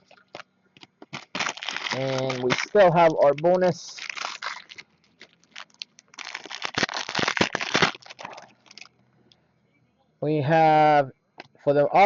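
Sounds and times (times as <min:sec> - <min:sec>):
wrapper crinkling as torn open: 0:01.0 - 0:09.0.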